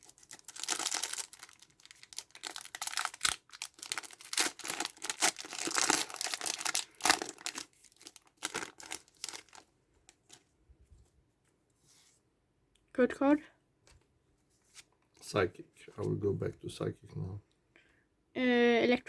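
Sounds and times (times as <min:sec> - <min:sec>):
foil wrapper tearing and crinkling: 0:00.0 - 0:09.7.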